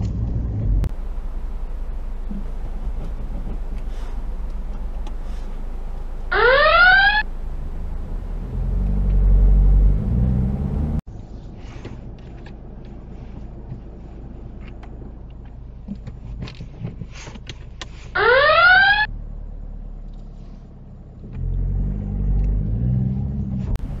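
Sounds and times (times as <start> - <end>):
car engine idling: 0.0 - 18.2, 23.7 - 24.0
whistle-like rising tone: 6.3 - 7.3.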